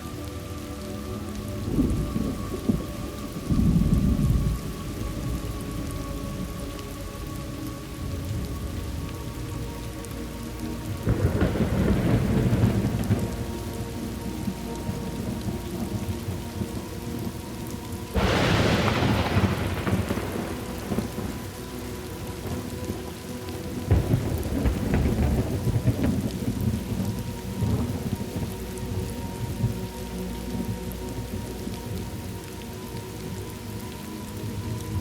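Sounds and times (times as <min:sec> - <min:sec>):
steady rain: 0:00.0 - 0:35.0
low rumble of thunder: 0:01.5 - 0:10.1, 0:10.7 - 0:33.7
sharp thunderclap: 0:18.2 - 0:21.4, 0:23.9 - 0:26.8.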